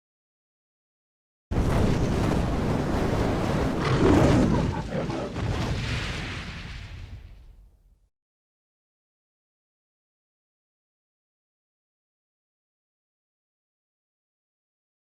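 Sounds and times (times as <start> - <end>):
deep rumbling noise: 1.5 - 7.6.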